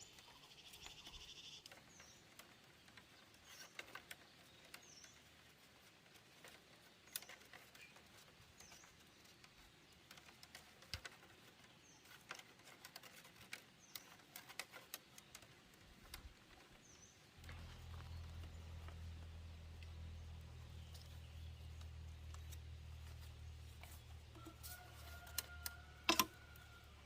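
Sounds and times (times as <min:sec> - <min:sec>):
faint clicks and taps: 0:00.1 - 0:26.7
low steady hum: 0:16.0 - 0:27.0.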